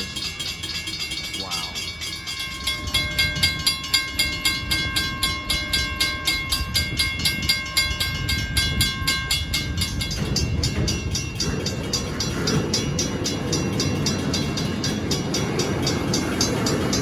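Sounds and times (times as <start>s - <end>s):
crossing warning bell ringing: 0.0s - 17.0s
train cars rumbling: 0.0s - 17.0s.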